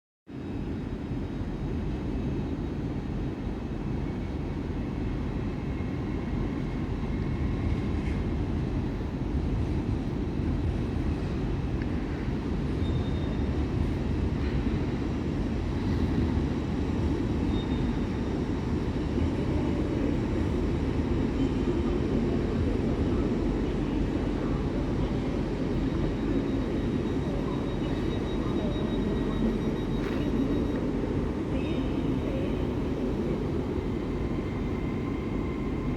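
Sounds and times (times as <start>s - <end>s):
train rumbling: 0.5s - 35.9s
faint high-pitched tones: 24.0s - 35.9s.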